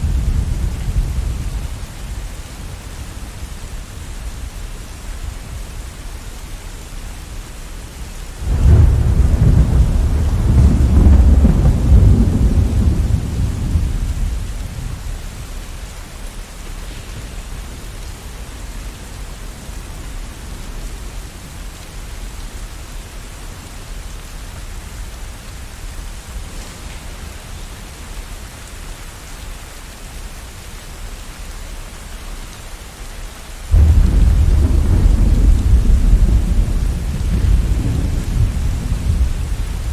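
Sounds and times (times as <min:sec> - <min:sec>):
steady rain: 0:00.0 - 0:39.9
thunder claps: 0:08.4 - 0:15.0, 0:33.7 - 0:39.9.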